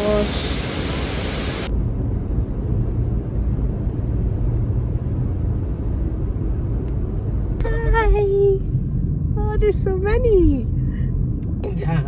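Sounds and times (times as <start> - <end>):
rushing waterfall: 0.0 - 1.7
car driving heard from inside: 1.6 - 12.0.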